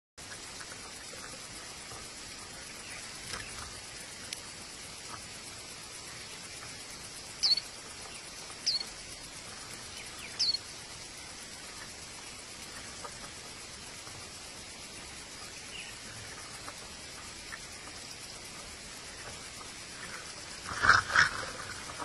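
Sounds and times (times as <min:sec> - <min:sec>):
steady high hiss: 0:00.2 - 0:22.0
high bird chirps: 0:07.4 - 0:07.7, 0:08.6 - 0:08.9, 0:09.9 - 0:10.6.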